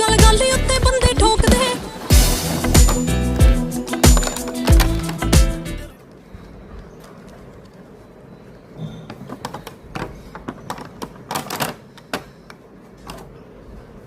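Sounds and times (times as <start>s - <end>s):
plastic toy and packaging clicking: 4.2s - 5.3s, 9.3s - 13.3s.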